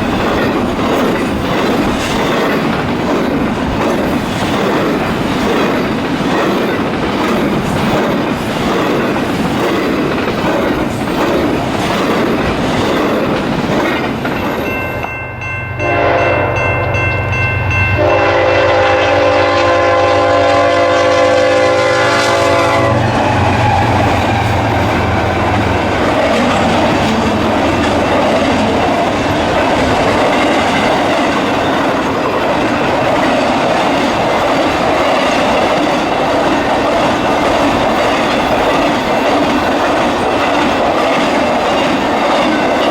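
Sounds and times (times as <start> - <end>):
train wheel clatter: 0.0 - 18.3, 22.3 - 42.9
locomotive air horn: 15.8 - 16.6, 18.0 - 26.0.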